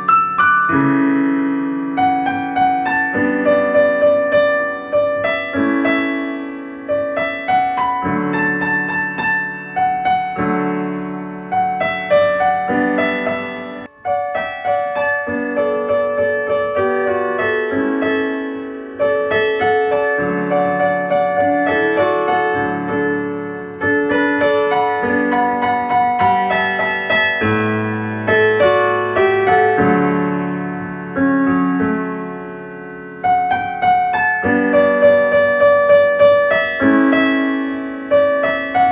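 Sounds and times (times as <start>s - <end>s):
calm solo piano: 0.0s - 38.9s.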